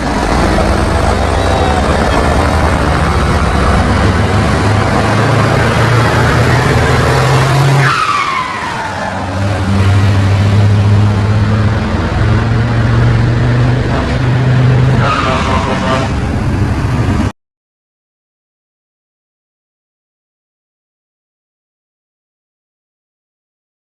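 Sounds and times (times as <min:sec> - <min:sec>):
truck diesel engine running: 0:00.0 - 0:17.3.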